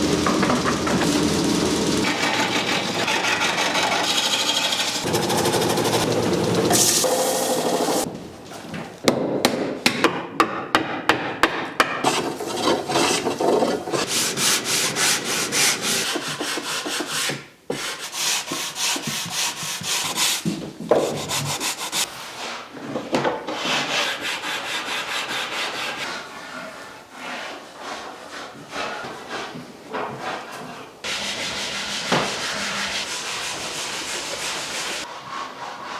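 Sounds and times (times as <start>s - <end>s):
rasping strokes on wood: 0.0s - 8.1s.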